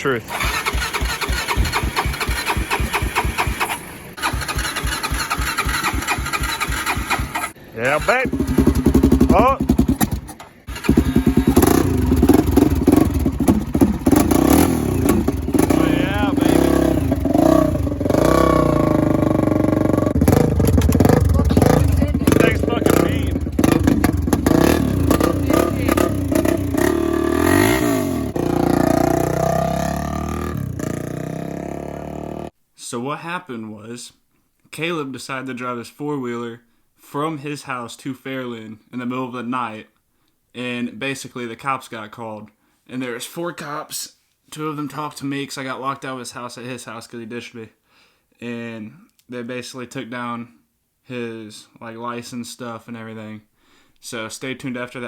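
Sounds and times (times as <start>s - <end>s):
quad bike engine revving: 0.2s - 32.5s
engine cranking on electric starter: 0.3s - 16.4s.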